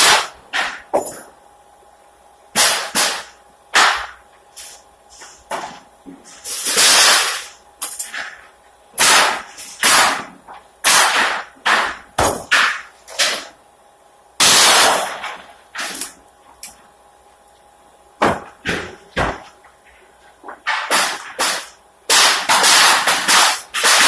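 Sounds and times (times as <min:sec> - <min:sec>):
nail gun firing: 0:00.0 - 0:00.8, 0:02.6 - 0:04.2, 0:06.7 - 0:07.5, 0:09.0 - 0:13.5, 0:14.4 - 0:16.1, 0:20.7 - 0:24.0.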